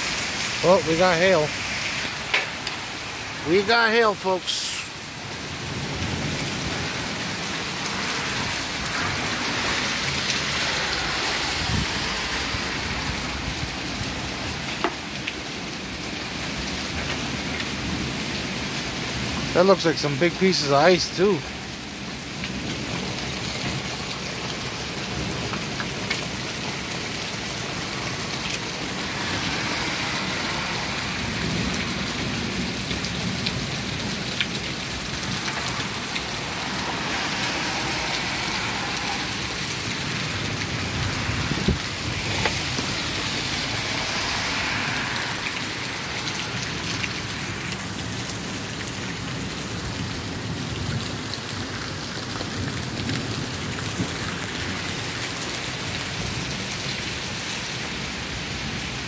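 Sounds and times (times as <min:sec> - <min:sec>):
car tyres hissing on wet street: 0:00.0 - 0:59.0
heavy rain pouring: 0:00.0 - 0:59.0
hailstones ticking: 0:21.4 - 0:30.1, 0:30.9 - 0:43.4.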